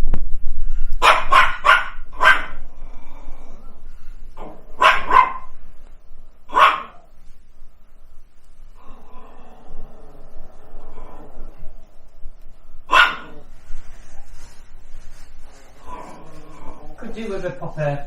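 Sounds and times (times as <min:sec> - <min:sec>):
dogs barking: 0:01.0 - 0:02.8, 0:04.4 - 0:05.7, 0:06.4 - 0:07.1, 0:12.8 - 0:13.5.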